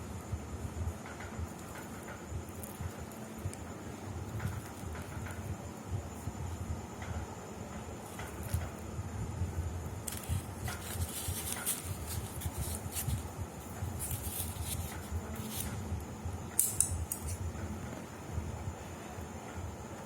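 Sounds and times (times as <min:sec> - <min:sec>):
packaging rustling: 0:10.0 - 0:13.3.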